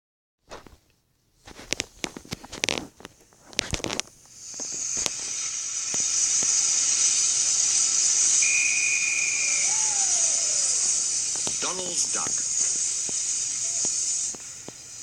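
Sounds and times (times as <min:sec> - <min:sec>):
steam locomotive steam hiss: 0:04.2 - 0:15.0
short high whistle-like tone: 0:05.5 - 0:14.3.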